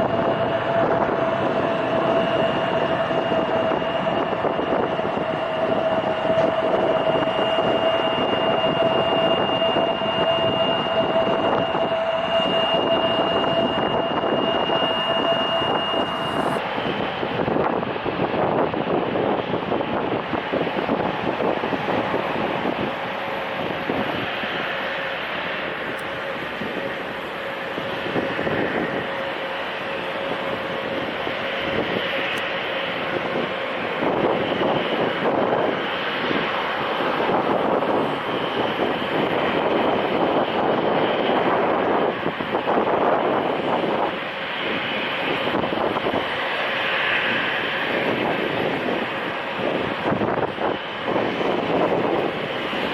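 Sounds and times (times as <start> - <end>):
faint engine whine: 0.0 - 52.9
jet engines roaring: 0.0 - 52.9.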